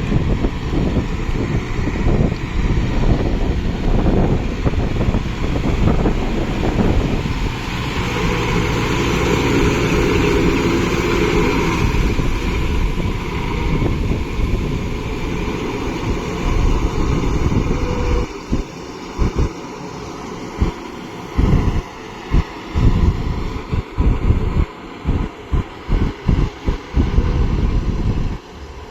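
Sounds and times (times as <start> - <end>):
tractor diesel engine running: 0.0 - 28.9
wind on microphone: 0.0 - 28.9.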